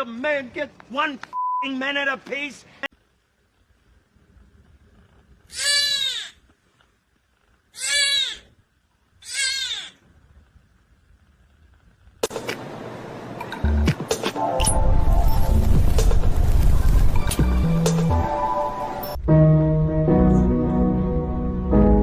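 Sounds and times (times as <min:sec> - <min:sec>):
steady noisy sound: 0:10.0 - 0:19.2.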